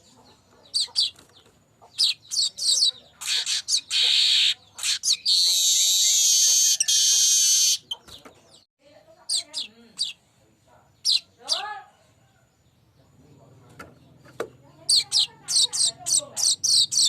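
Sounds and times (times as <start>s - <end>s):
bird singing high chirps: 0.7s - 8.6s, 11.0s - 11.7s, 14.8s - 17.0s
harsh wheezing bird buzz: 3.3s - 7.8s.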